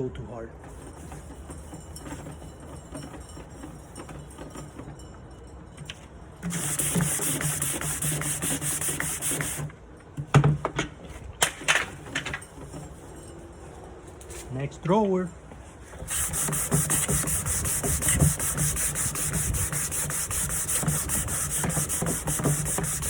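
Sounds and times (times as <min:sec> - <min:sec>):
sandpaper sanding wood: 0:06.5 - 0:09.6, 0:16.0 - 0:23.0.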